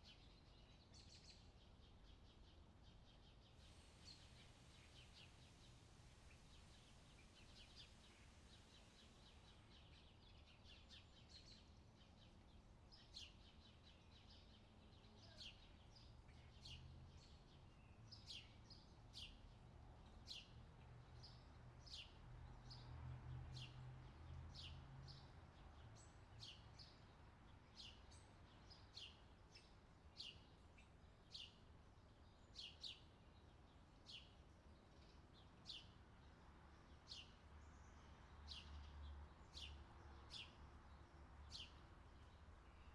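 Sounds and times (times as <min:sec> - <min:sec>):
soft steady hiss: 0:00.0 - 0:21.7.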